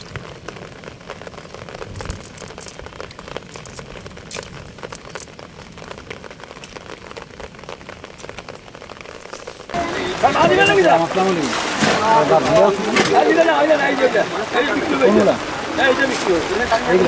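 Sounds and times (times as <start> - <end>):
rain drops ticking: 0.0 - 17.0
rain falling: 0.0 - 17.0
wet fishing net rustling: 9.2 - 15.0.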